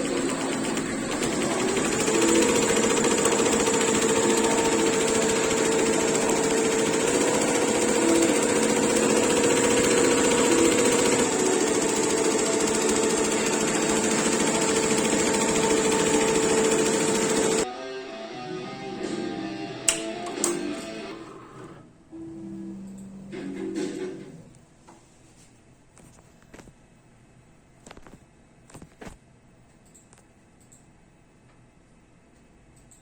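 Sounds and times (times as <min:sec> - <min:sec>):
embroidery machine stitching: 0:00.0 - 0:17.6.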